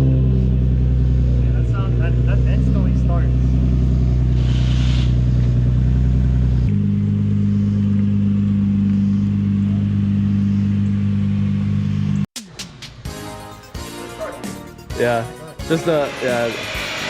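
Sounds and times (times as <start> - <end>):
car engine idling: 0.0 - 12.3.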